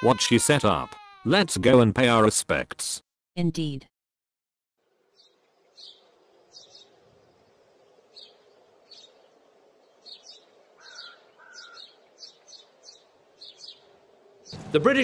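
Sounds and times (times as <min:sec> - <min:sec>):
birds chirping: 0:04.9 - 0:15.0.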